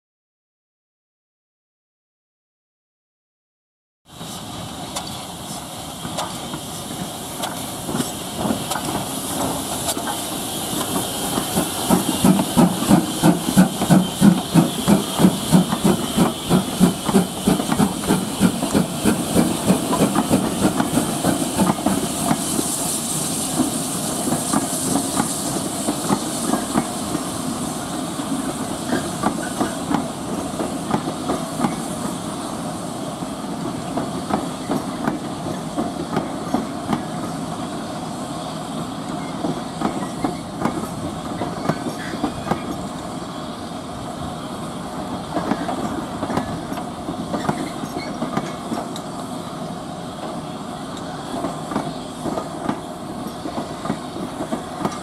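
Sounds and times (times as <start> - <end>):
steam locomotive exhaust hiss: 4.1 - 55.0
train wheels clicking over rail joints: 4.8 - 22.9, 23.5 - 27.3, 39.0 - 43.2, 45.0 - 49.2, 51.0 - 55.0.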